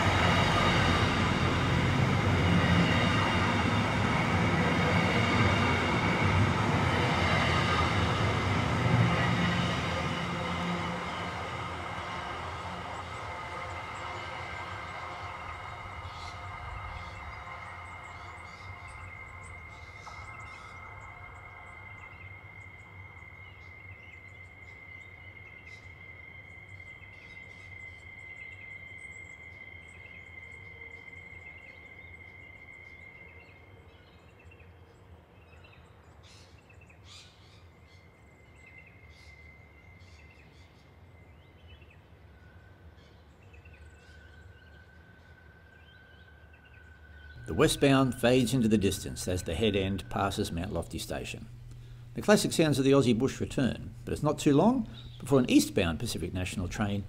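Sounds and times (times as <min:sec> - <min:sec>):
freight train rumble: 0:00.0 - 0:23.0, 0:47.3 - 0:57.0
steady high tone: 0:00.0 - 0:23.1, 0:47.4 - 0:57.0
birds chirping: 0:00.0 - 0:29.4, 0:43.0 - 0:57.0.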